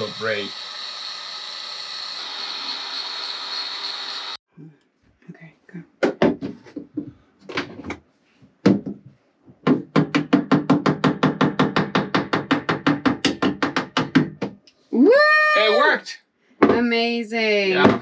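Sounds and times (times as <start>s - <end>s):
knocking on plastic pipe: 8.6s - 9.0s, 9.6s - 14.6s.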